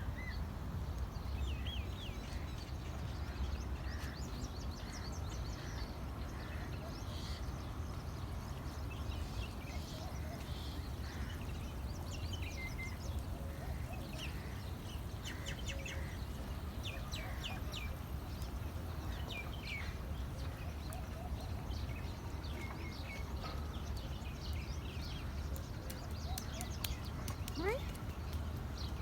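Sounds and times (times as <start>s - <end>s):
small birds chirping: 7.9s - 29.0s.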